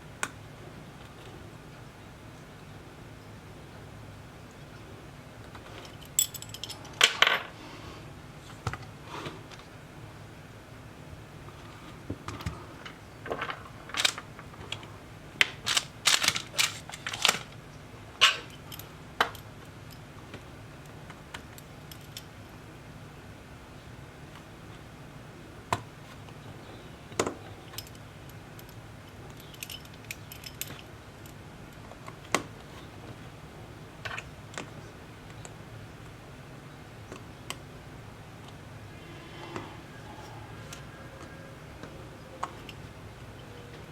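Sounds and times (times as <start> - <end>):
low steady hum: 0.0 - 43.9
small tools clicking and tapping: 12.3 - 17.6.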